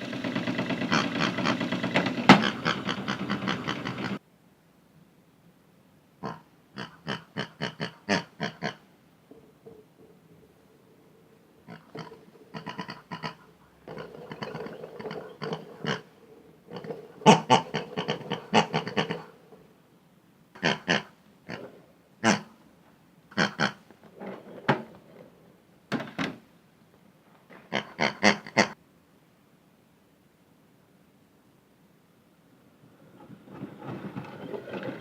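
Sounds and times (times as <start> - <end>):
pig oinking and grunting: 0.8 - 4.2, 6.2 - 8.8, 11.3 - 19.6, 20.6 - 22.6, 23.3 - 23.8, 27.6 - 28.8.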